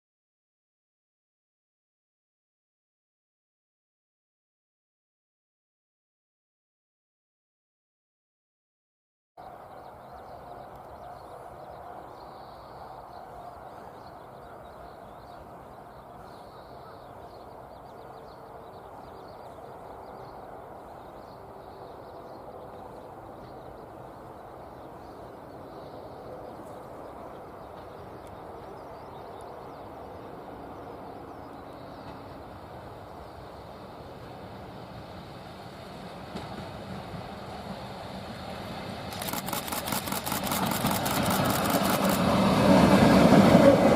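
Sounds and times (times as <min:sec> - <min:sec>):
faint bird calls: 0:09.5 - 0:22.2
train rumble and clatter: 0:09.5 - 0:43.9.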